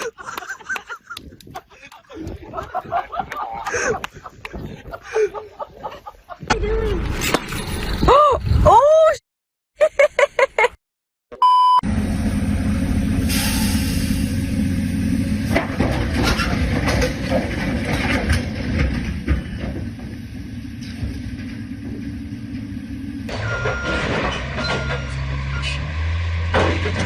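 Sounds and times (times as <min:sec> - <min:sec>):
short beep: 0:11.3 - 0:11.8, 0:23.4 - 0:24.0, 0:24.6 - 0:25.7
large vehicle engine rumbling: 0:11.8 - 0:27.0.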